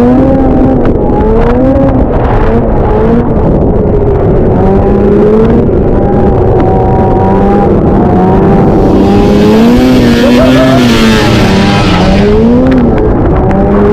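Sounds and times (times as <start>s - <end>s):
snowmobile engine revving: 4.3s - 13.9s.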